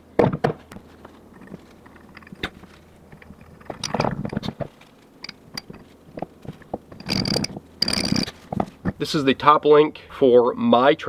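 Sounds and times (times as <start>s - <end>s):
metal scraping: 0.8s - 9.5s
metal clicks: 1.3s - 4.6s, 5.2s - 9.0s.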